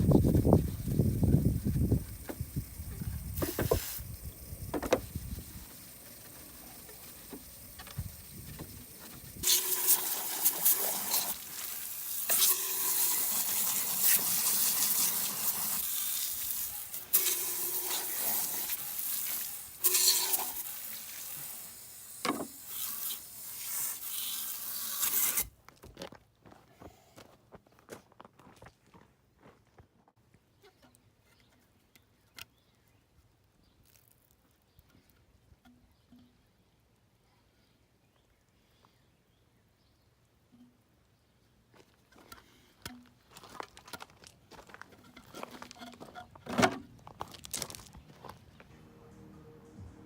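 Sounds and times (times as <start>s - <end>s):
sizzling and hissing: 0.0s - 25.5s.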